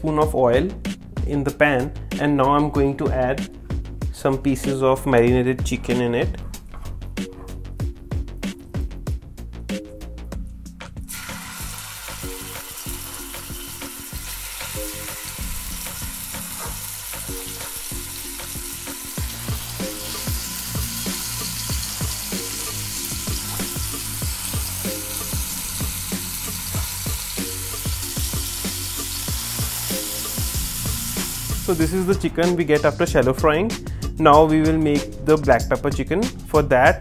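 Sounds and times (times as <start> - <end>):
chicken sizzling in oil: 11.1 - 32.0.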